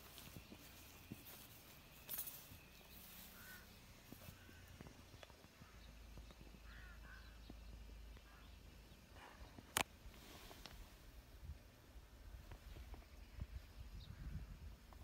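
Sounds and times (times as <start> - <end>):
faint short bird calls: 2.9 - 9.6.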